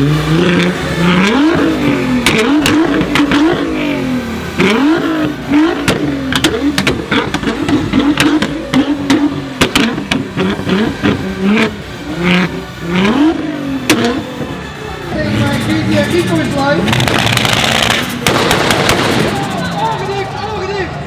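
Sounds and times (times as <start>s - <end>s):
car engine revving: 0.0s - 20.5s
sharp engine pops: 16.9s - 19.5s.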